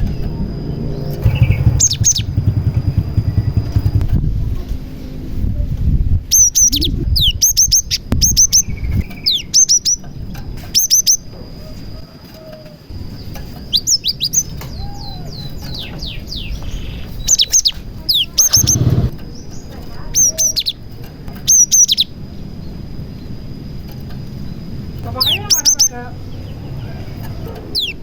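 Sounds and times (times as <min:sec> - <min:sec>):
bird singing whistled notes: 0:00.0 - 0:04.0, 0:06.3 - 0:10.1, 0:10.7 - 0:11.3, 0:13.1 - 0:20.8, 0:21.4 - 0:22.3, 0:24.4 - 0:27.1, 0:27.7 - 0:28.0
low rumble: 0:00.0 - 0:06.2.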